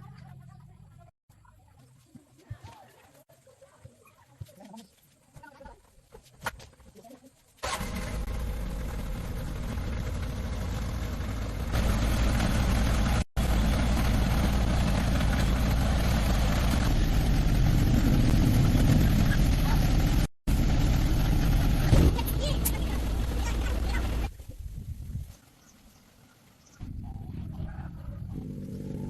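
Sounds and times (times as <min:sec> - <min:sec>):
engine running: 0:07.6 - 0:24.3, 0:28.1 - 0:29.0.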